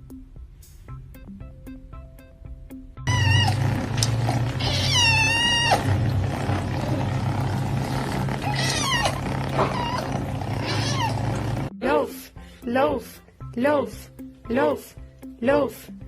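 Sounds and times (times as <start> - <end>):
soft plucked music: 0.0 - 13.8
cat meowing: 3.1 - 6.2, 8.2 - 11.7.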